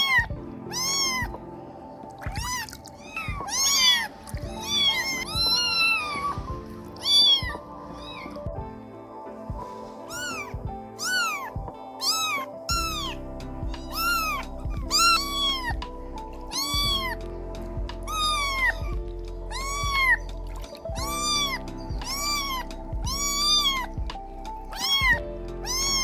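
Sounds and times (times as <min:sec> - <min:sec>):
kitten meowing: 0:00.0 - 0:01.4, 0:02.2 - 0:08.5, 0:10.1 - 0:26.0
background music: 0:00.0 - 0:26.0.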